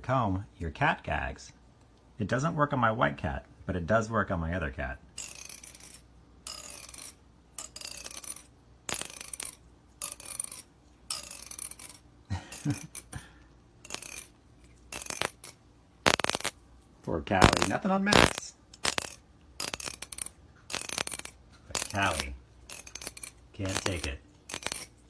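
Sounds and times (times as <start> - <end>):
comb teeth rasping: 5.2 - 16.6, 17.4 - 25.0.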